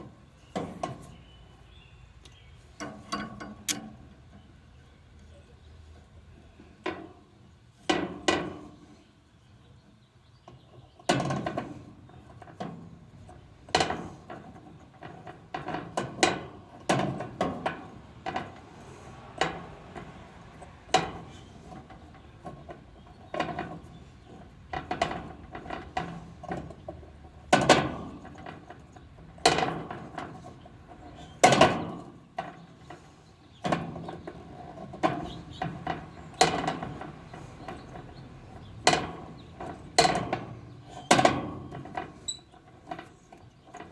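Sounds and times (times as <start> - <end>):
metallic clanks of tools: 2.8 - 3.9.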